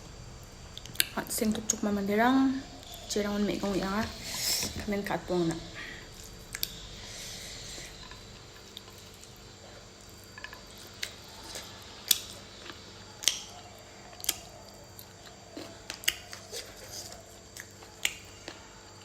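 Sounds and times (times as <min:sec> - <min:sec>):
short hiss: 0:03.8 - 0:05.1
person chewing with wet smacks: 0:06.2 - 0:06.8, 0:07.8 - 0:18.7.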